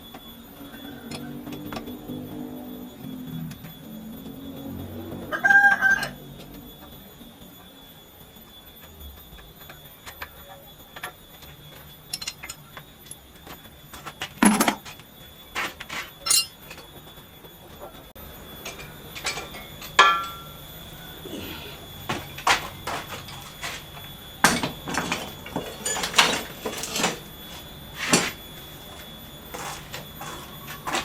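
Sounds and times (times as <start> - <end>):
metal tools clinking and knocking: 14.4 - 15.0, 15.6 - 16.9, 18.6 - 20.5, 22.1 - 31.0
ringing metal clank: 15.6 - 16.8, 18.6 - 20.6, 22.1 - 31.0.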